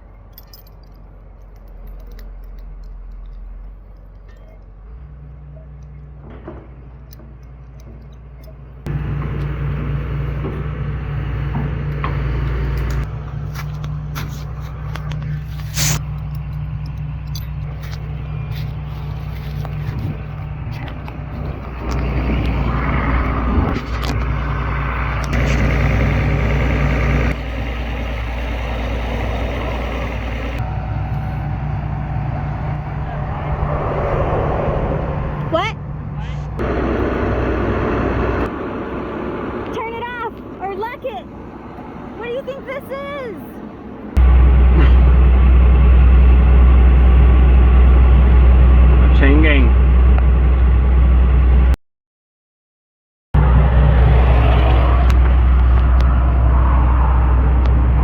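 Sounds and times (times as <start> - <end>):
diesel excavator engine under load: 0.0 - 51.8, 53.4 - 58.0
knocks and scrapes from digging: 12.9 - 16.1.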